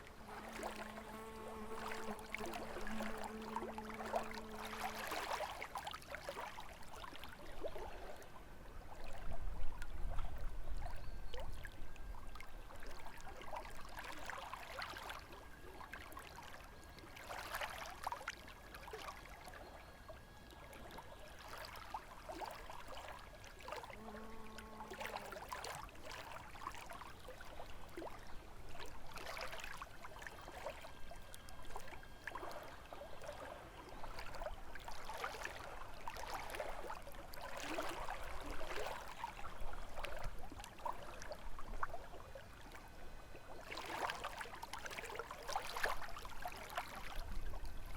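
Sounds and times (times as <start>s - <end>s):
lake waves lapping on shore: 0.0s - 8.2s, 20.8s - 47.9s.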